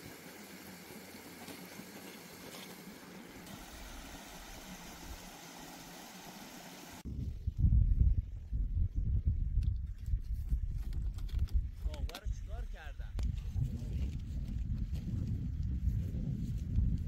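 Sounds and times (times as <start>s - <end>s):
mountain stream rushing: 0.0s - 7.0s.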